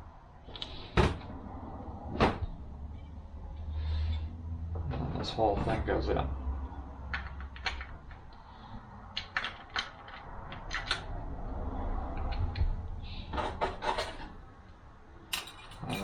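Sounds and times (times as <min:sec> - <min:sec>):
metal parts clicking and clacking: 0:09.1 - 0:11.1, 0:15.3 - 0:16.0.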